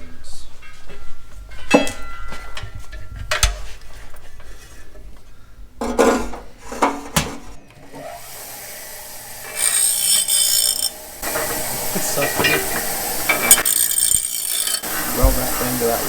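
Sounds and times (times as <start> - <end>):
metal tools knocking and scraping: 0.6 - 5.2, 5.8 - 7.7, 9.6 - 15.8
steady hiss: 11.2 - 13.5, 14.9 - 16.0.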